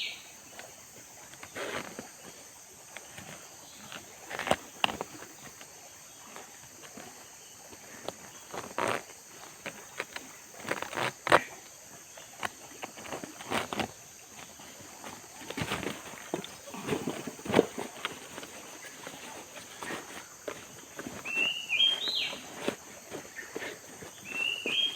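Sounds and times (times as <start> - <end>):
high insect chorus: 0.0 - 24.9
short rustles and knocks: 12.4 - 24.9.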